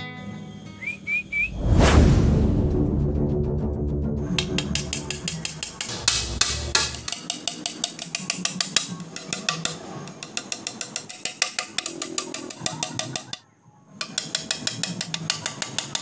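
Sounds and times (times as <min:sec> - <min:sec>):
background music: 0:00.0 - 0:07.4
hammer tapping nails into wood: 0:04.4 - 0:13.4.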